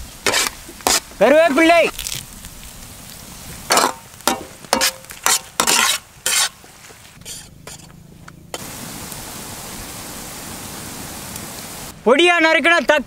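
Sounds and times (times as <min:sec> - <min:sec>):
ladle scraping the pan: 0:00.2 - 0:01.1, 0:03.7 - 0:08.0.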